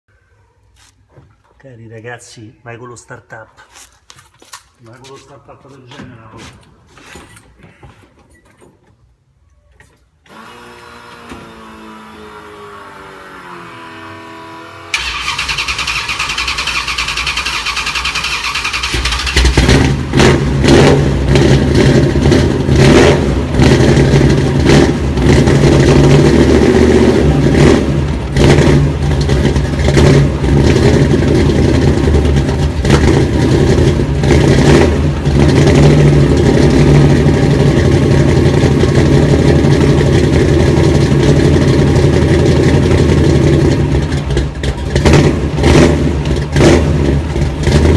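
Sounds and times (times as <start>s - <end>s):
car engine revving and idling: 10.4s - 18.2s, 18.8s - 47.9s
engine starter cranking: 14.9s - 19.9s.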